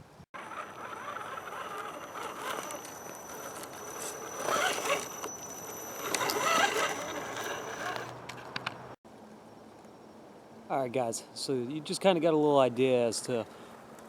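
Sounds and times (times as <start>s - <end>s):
electric motor whine: 0.4s - 8.2s
tyres crunching over dirt and rocks: 0.5s - 8.6s.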